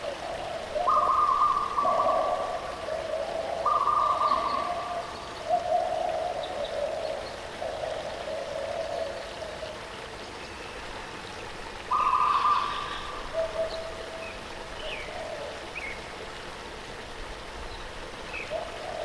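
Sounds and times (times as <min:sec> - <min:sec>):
bird hooting calls: 0:00.0 - 0:09.7, 0:11.9 - 0:15.9.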